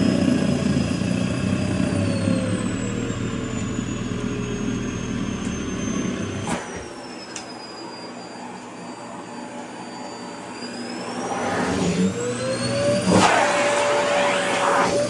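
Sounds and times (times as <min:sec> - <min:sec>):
vacuum cleaner motor whine: 0:00.0 - 0:15.0
steady tone: 0:10.4 - 0:15.0.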